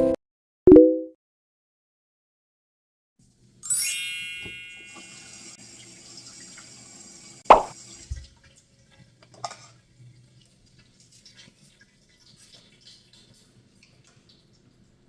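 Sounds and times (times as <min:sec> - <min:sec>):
running water tap: 0:03.2 - 0:15.0
faint water drips: 0:07.5 - 0:15.0.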